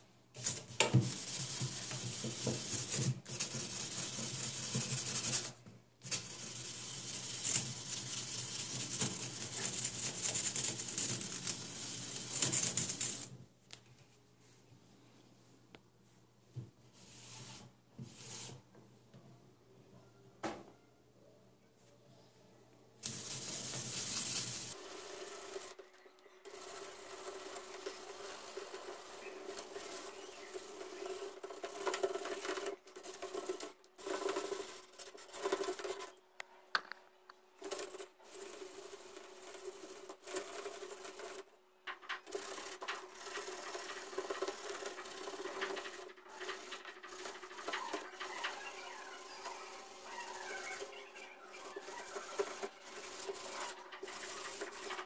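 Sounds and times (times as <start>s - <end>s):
sanding on metal grille: 0.4s - 13.3s, 23.0s - 25.8s, 26.5s - 36.1s, 42.2s - 55.0s.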